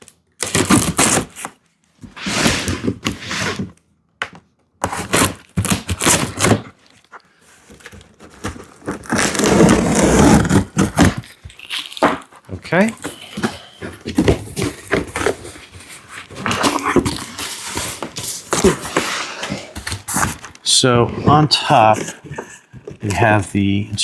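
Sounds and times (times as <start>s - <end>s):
cardboard box scrapes and thunks: 2.0s - 3.7s, 8.4s - 11.3s, 13.2s - 20.5s.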